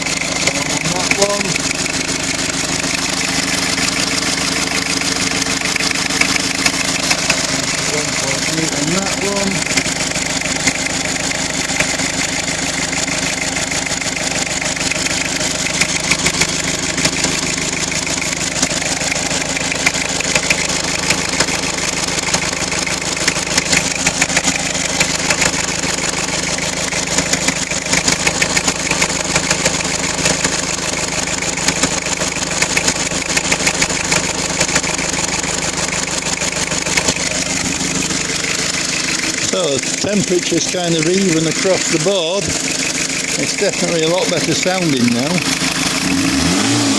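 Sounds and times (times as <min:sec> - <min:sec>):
car engine idling: 0:00.0 - 0:46.9
fast light ticking: 0:32.6 - 0:34.8.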